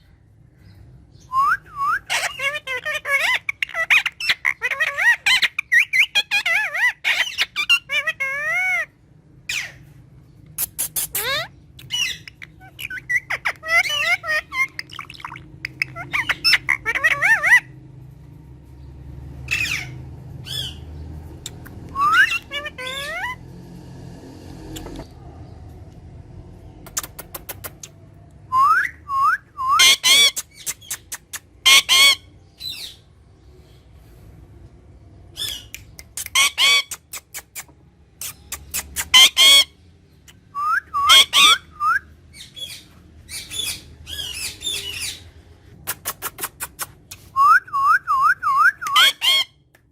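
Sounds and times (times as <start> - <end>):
parrot squawking: 1.8 - 9.9, 10.6 - 17.8, 19.5 - 20.8, 21.4 - 23.4, 28.6 - 33.1, 35.4 - 49.6
parrot whistling: 21.9 - 23.4, 40.5 - 42.1, 47.4 - 49.5
parrot clicks: 26.9 - 28.0.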